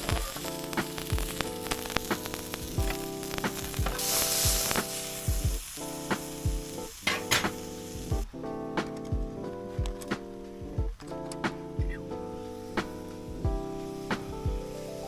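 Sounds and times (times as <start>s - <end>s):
food sizzling in a pan: 0.0s - 8.1s, 13.6s - 15.0s
background music with beat: 0.0s - 15.0s.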